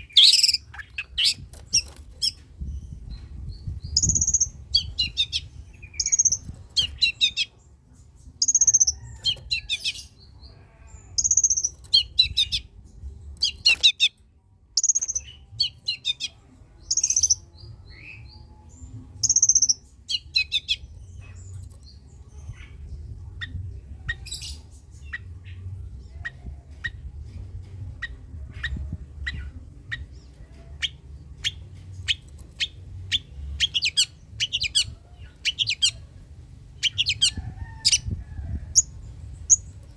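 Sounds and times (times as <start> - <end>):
low rumble: 20.8 - 32.1.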